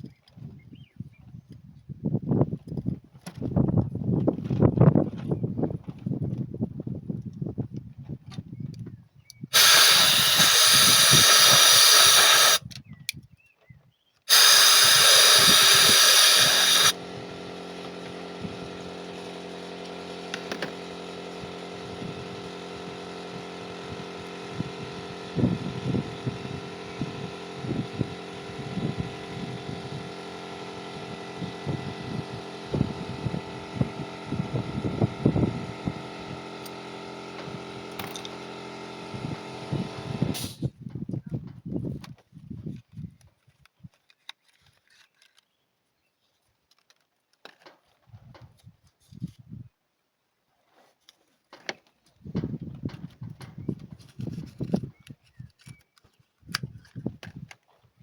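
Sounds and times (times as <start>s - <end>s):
loud steady hisses: 9.6s - 12.6s, 14.3s - 17.0s
mechanical hum: 14.3s - 40.7s.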